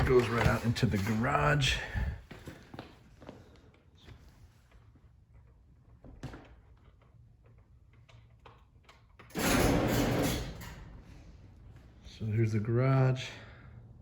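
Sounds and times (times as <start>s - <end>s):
footsteps: 0.0s - 4.4s
door scraping open: 9.3s - 10.9s.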